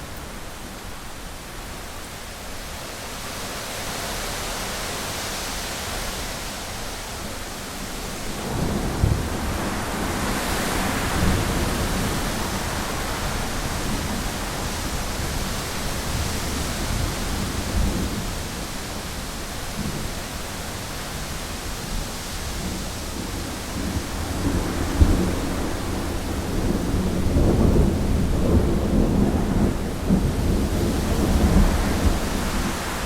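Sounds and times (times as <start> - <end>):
heavy rain on a window: 0.0 - 33.0
thunder rumbling: 22.6 - 33.0.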